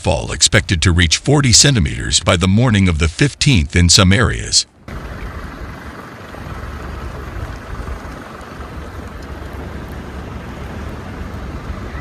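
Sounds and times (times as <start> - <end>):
wind buffeting microphone: 4.8 - 12.0.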